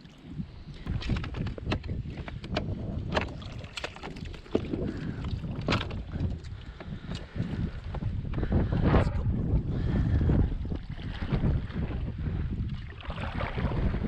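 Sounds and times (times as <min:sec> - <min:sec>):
wind rumbling on microphone: 0:00.0 - 0:14.0
small knocks and splashes: 0:00.9 - 0:06.6.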